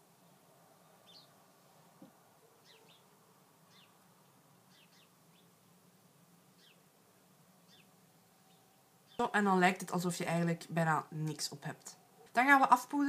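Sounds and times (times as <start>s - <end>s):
faint room hum: 0.0s - 13.0s
small bird chirping: 0.2s - 1.4s, 2.4s - 5.8s, 6.5s - 6.9s, 7.6s - 9.4s.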